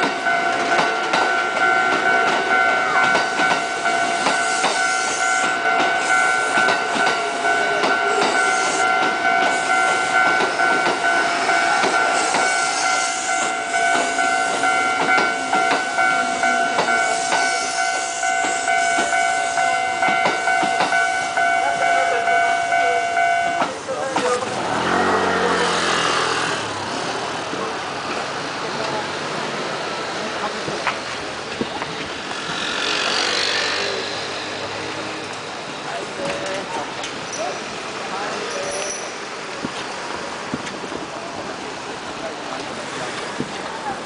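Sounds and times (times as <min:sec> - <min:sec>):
train running on rails: 0:00.0 - 0:44.0
high ringing tone: 0:09.7 - 0:23.6.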